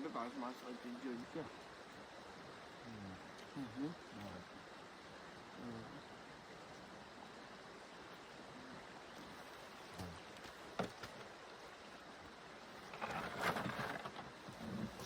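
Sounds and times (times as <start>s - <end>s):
river flowing: 0.0s - 15.0s
loud rustle: 12.9s - 15.0s.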